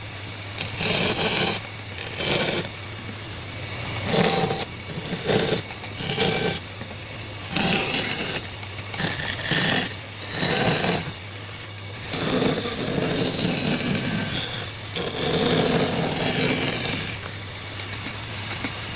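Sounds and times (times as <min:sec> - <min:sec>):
tool rubbing across wood: 0:00.6 - 0:02.8, 0:03.9 - 0:06.7, 0:07.4 - 0:11.2, 0:12.0 - 0:17.4.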